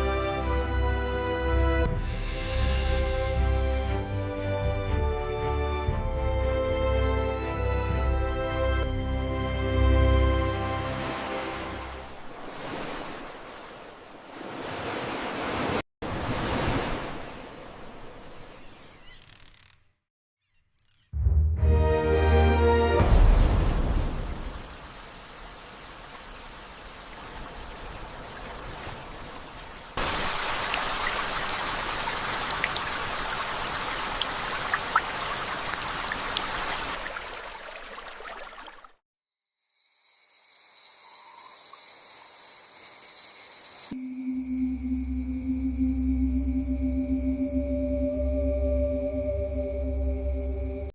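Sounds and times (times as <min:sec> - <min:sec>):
ocean waves washing in: 0:09.7 - 0:18.8, 0:23.0 - 0:38.9
steady rain: 0:23.0 - 0:38.3
raindrops ticking: 0:30.0 - 0:37.0.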